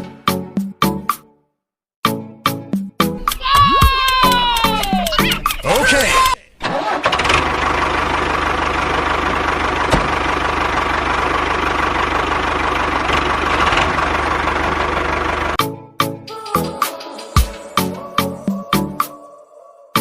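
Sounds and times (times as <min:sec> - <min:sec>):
engine idling with knocking: 0:07.1 - 0:15.6.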